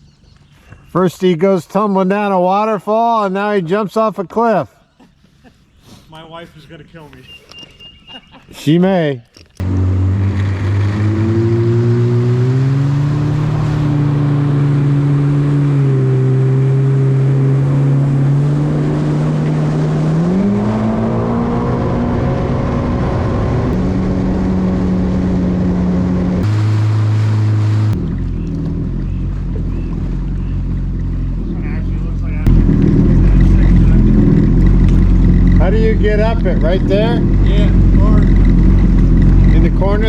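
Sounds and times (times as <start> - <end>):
jet ski engine running: 9.6 - 40.0.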